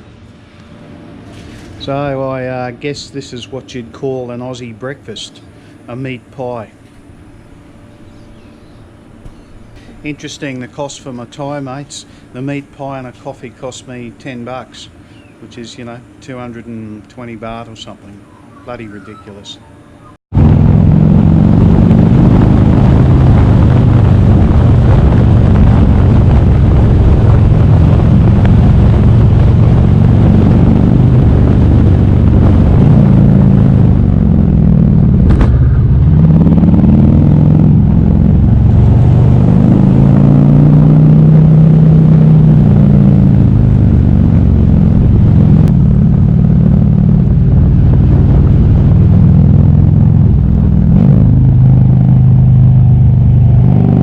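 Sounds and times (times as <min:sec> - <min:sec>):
motorcycle engine running: 0:20.0 - 0:54.0.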